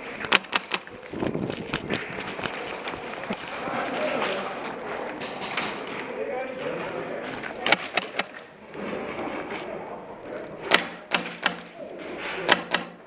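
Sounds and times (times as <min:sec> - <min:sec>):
airsoft guns firing: 0:00.2 - 0:01.0, 0:07.6 - 0:08.4, 0:10.7 - 0:11.8, 0:12.4 - 0:13.0.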